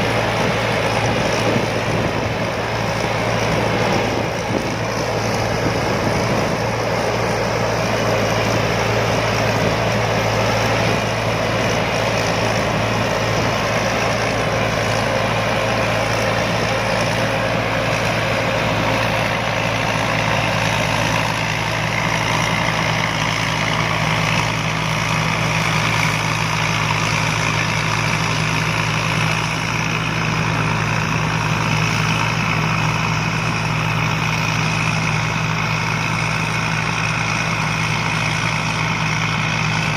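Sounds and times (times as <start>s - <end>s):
combine harvester engine humming: 0.0s - 39.9s.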